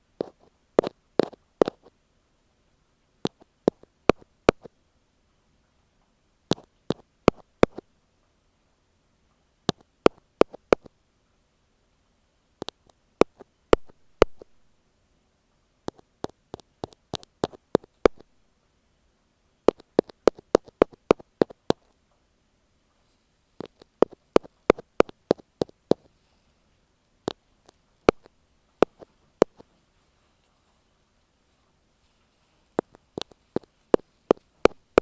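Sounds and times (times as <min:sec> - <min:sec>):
ear pick tapping microphone: 0:00.2 - 0:01.9, 0:03.2 - 0:04.8, 0:06.5 - 0:07.9, 0:09.6 - 0:11.0, 0:12.6 - 0:14.6, 0:15.8 - 0:18.4, 0:19.7 - 0:22.0, 0:23.6 - 0:26.1, 0:27.3 - 0:29.7, 0:32.8 - 0:35.0.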